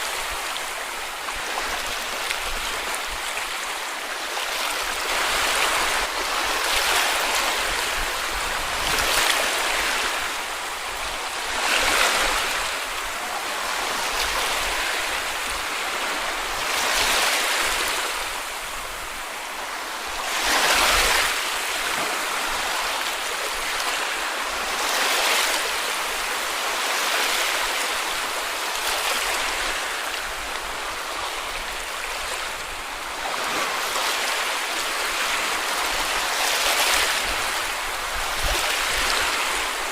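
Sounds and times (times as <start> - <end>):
sea waves washing onto a beach: 0.0 - 39.9.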